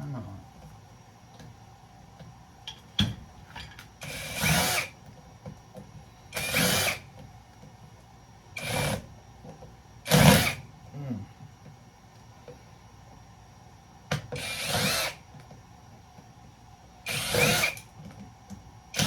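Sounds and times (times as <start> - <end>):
power drill spinning: 4.0 - 4.9, 6.4 - 7.0, 14.4 - 15.2, 17.1 - 17.8.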